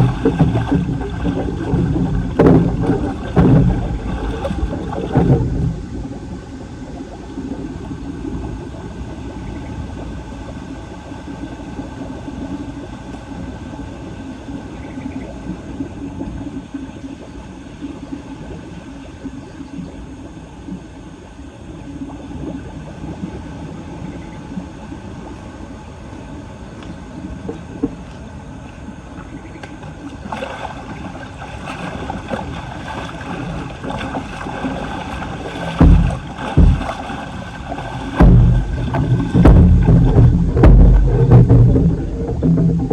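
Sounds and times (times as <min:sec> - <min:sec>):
floodwater rushing down a drain: 0:00.0 - 0:14.6, 0:29.6 - 0:42.9.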